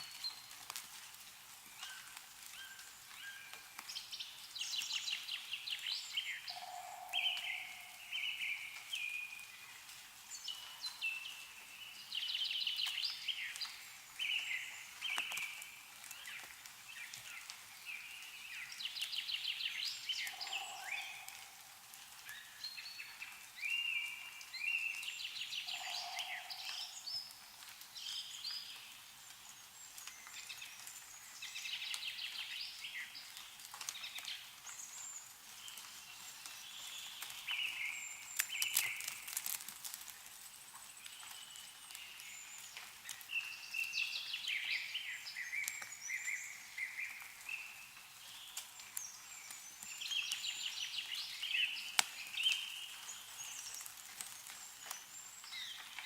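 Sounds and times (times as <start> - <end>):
meltwater dripping: 0.0 - 56.0
songbird singing trills: 2.6 - 9.5, 18.0 - 27.4.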